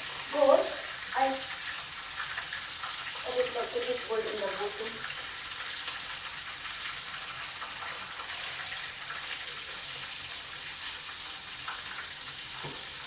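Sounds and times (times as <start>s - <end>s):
chicken frying in hot oil: 0.0s - 13.0s.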